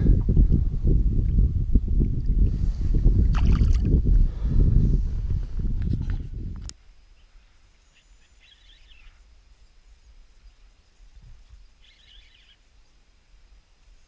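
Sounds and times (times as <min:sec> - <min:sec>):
low steady rumble: 0:00.0 - 0:06.8.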